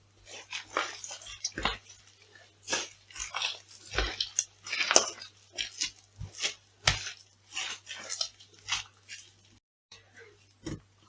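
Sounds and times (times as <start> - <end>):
food crunching and squishing: 0.0 - 11.0.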